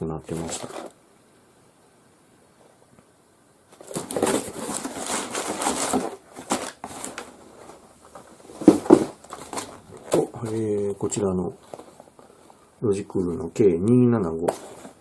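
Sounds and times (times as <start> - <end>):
packaging crinkling: 3.7 - 12.5
box knocks: 8.6 - 9.5.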